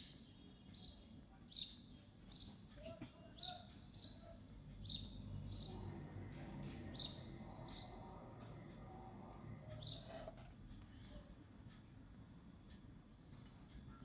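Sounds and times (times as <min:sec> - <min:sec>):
small bird chirping: 0:00.0 - 0:08.5, 0:09.7 - 0:10.4
faint low hum: 0:00.0 - 0:14.0.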